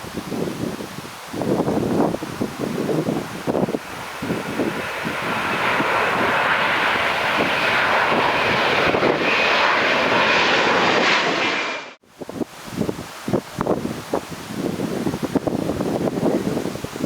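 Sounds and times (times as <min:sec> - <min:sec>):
wind buffeting microphone: 0:00.0 - 0:17.0
airliner engines passing: 0:01.6 - 0:12.0.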